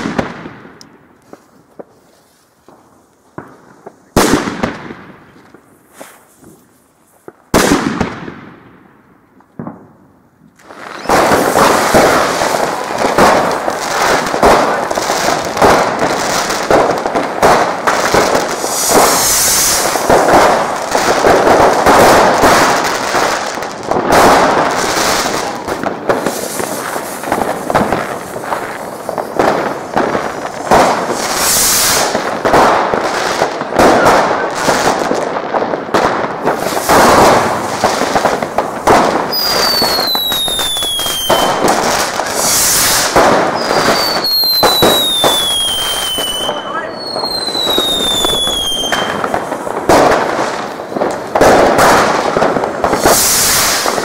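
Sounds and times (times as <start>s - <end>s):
fireworks bangs and crackling: 0.0s - 54.0s
falling firework whistles: 5.8s - 8.0s, 10.6s - 15.8s, 17.5s - 20.6s, 24.1s - 32.6s, 36.4s - 50.2s, 51.4s - 54.0s.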